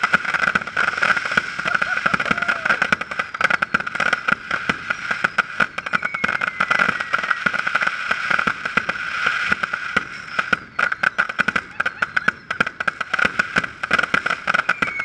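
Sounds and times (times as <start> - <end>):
steady hiss: 0.0 - 10.9
fireworks pops and bangs: 0.0 - 15.0
faint falling whistle: 4.1 - 7.7, 10.1 - 12.6, 14.4 - 15.0.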